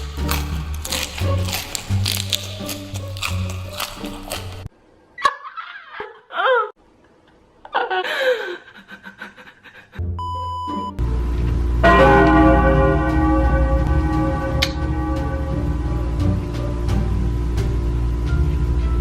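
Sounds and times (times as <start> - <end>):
gliding pitch sounds: 11.8 - 17.6
steady bell-like tone: 11.8 - 18.0.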